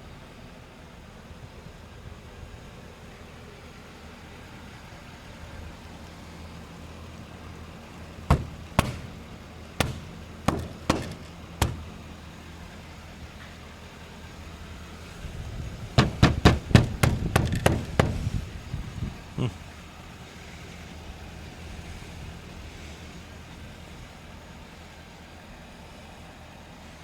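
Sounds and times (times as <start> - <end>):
car engine idling: 0.0 - 27.0
sharp knocks: 8.3 - 12.1, 16.0 - 18.4.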